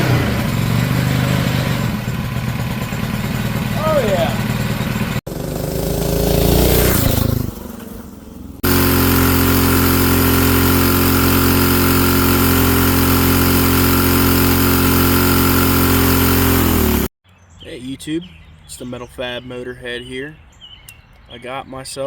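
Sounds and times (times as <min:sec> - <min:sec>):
mini bike engine revving: 0:00.0 - 0:17.1.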